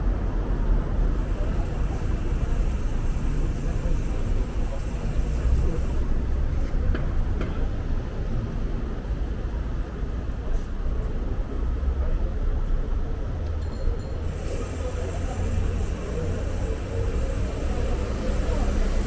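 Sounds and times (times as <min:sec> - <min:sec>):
city traffic rumble: 0:00.0 - 0:19.0.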